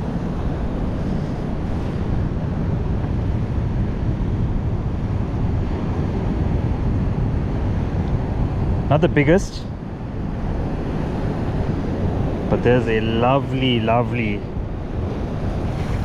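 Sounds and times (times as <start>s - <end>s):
wind buffeting microphone: 0.0s - 16.0s
surf breaking on beach: 10.2s - 16.0s.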